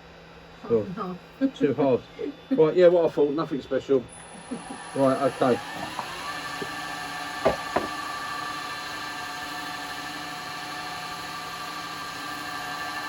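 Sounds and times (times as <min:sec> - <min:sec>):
wood lathe motor humming: 0:04.9 - 0:08.0
sharp knocks: 0:05.4 - 0:06.7, 0:07.4 - 0:08.0.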